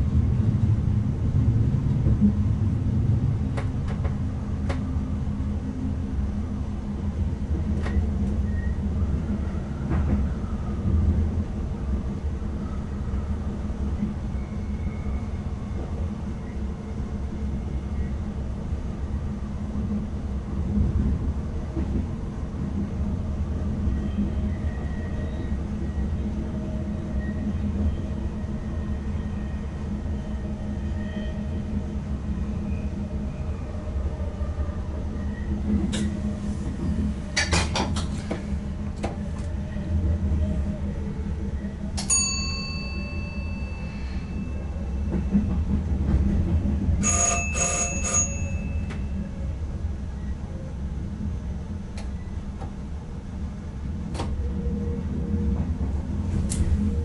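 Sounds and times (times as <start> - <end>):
train rumbling: 0.0 - 57.0
bell ringing: 42.1 - 44.0, 47.0 - 48.9.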